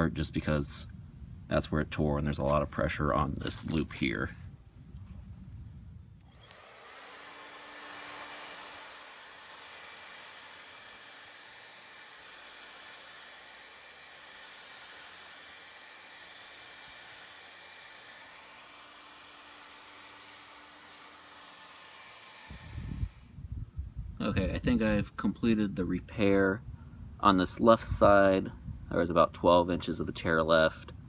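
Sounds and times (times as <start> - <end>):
hair dryer blowing: 6.2 - 23.3.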